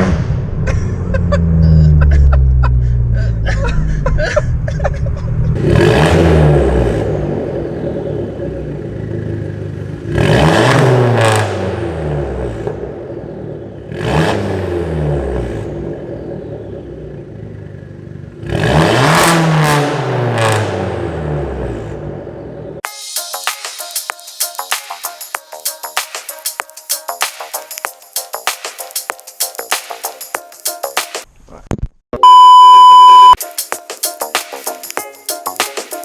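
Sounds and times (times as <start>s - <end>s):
car engine revving hard: 5.5s - 17.6s, 18.2s - 22.6s.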